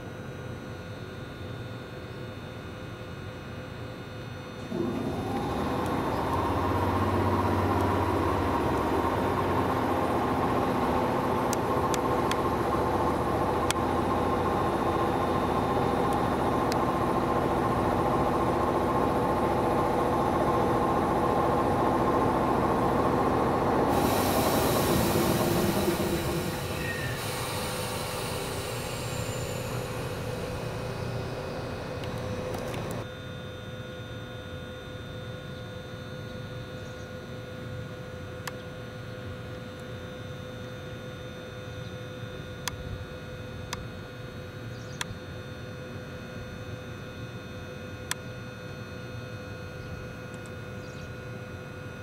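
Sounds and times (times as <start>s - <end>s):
electric train running: 4.7s - 33.1s
high hiss: 23.8s - 33.0s.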